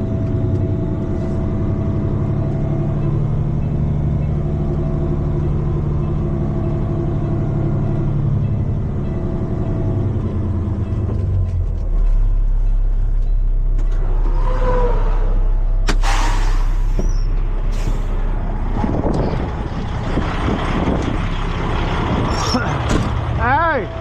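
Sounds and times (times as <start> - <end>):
truck diesel engine rumbling: 0.0 - 24.0
air brake click and hiss: 15.9 - 18.2.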